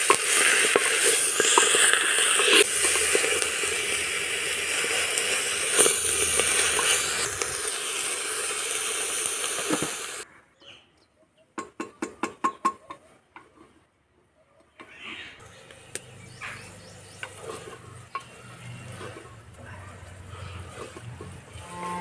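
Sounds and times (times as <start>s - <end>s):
spatula scraping metal pot: 0.0s - 7.5s, 16.2s - 22.0s
vegetables sizzling in a pot: 0.0s - 10.3s, 15.6s - 22.0s.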